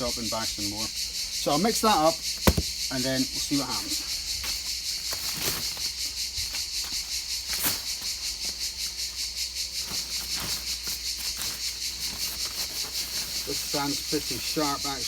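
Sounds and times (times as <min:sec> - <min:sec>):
insects chorus pulsing: 0:00.0 - 0:15.0
soft handling knocks: 0:02.4 - 0:02.8.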